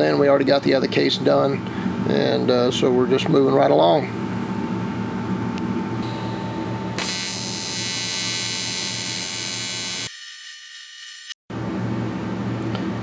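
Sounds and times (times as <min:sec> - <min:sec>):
faint hum: 0:05.6 - 0:10.1
high hiss: 0:06.0 - 0:10.1
welding arc buzzing: 0:06.0 - 0:10.2.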